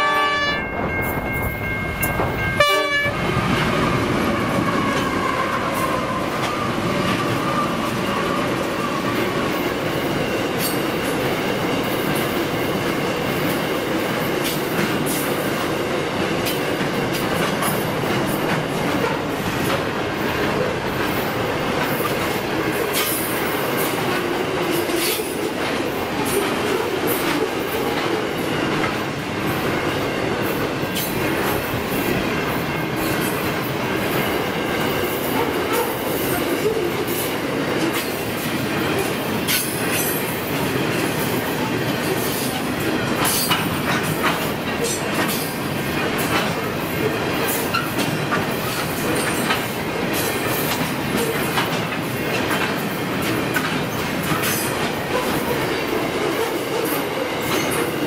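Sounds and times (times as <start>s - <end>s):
train horn blast: 0.0s - 0.8s, 2.5s - 3.3s
diesel locomotives passing: 0.0s - 58.0s
train wagons clacking over rail joints: 4.6s - 58.0s.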